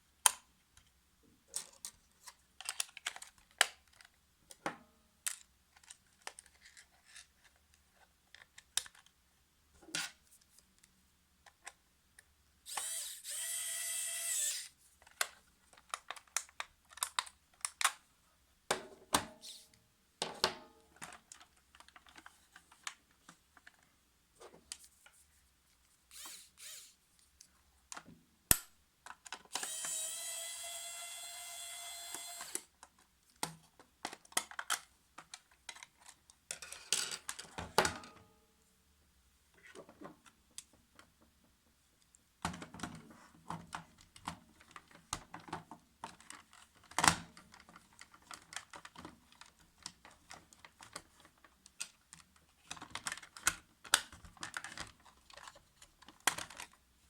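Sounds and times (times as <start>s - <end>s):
toy car motor whirring: 12.7s - 14.8s, 26.1s - 27.0s, 29.5s - 32.7s.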